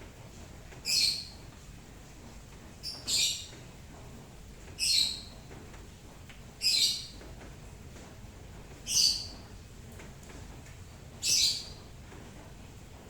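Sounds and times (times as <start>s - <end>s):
bird chirping: 11.2s - 11.8s.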